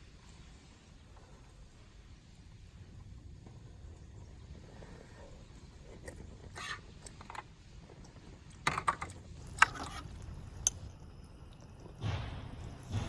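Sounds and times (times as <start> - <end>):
sharp knocks: 11.9 - 13.0.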